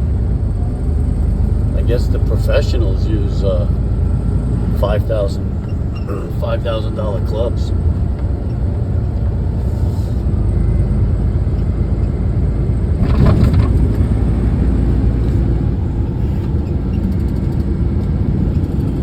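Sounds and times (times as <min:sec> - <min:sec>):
truck engine and road noise: 0:00.0 - 0:19.0.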